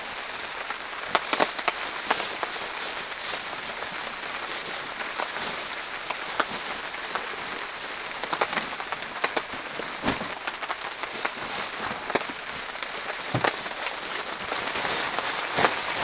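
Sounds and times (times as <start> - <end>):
rain on tent canvas: 0.0 - 16.0
dull thump: 10.0 - 10.4.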